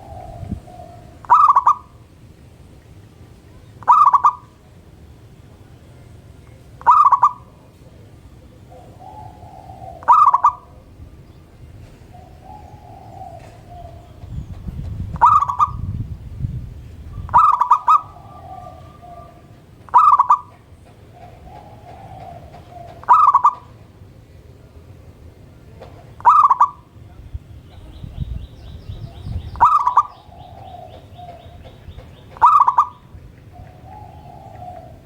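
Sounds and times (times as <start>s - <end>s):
soft low dove coos: 0.0s - 2.0s, 6.8s - 11.0s, 12.0s - 14.2s, 17.2s - 20.6s, 21.2s - 23.8s, 32.4s - 35.0s
dove cooing loudly: 0.0s - 2.1s, 3.8s - 4.6s, 6.8s - 7.7s, 8.6s - 11.0s, 12.1s - 14.3s, 15.0s - 16.0s, 17.1s - 23.8s, 26.2s - 26.9s, 29.0s - 35.0s.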